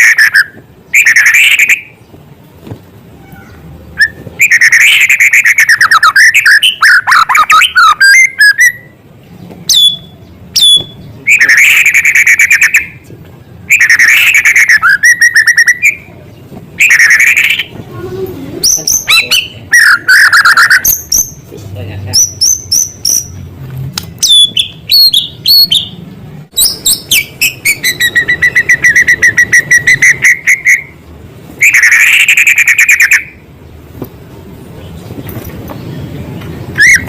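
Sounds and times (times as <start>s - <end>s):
songbird singing trills: 3.4s - 17.8s, 18.6s - 21.5s, 22.1s - 23.4s, 24.2s - 31.0s
sharp falling whistles: 26.6s - 31.0s.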